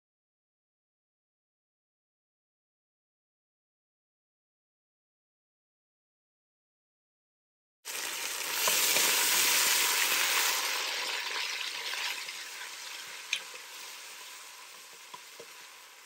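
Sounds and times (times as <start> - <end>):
paste sizzling in hot oil: 7.9 - 16.0.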